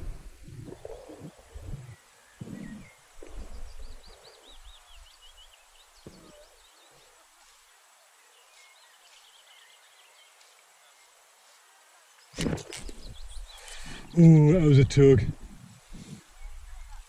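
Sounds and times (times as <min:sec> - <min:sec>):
low microphone rumble: 0:00.0 - 0:05.4
small bird singing: 0:00.5 - 0:11.2, 0:12.1 - 0:15.1.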